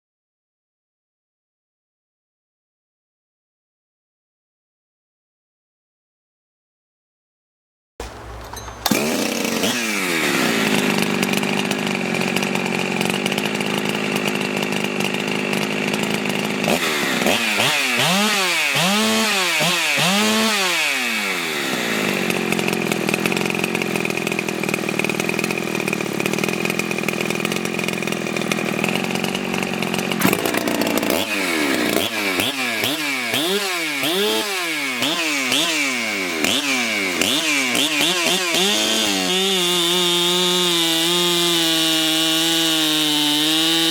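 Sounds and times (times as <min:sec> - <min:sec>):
chainsaw engine running hard: 0:08.8 - 0:43.9.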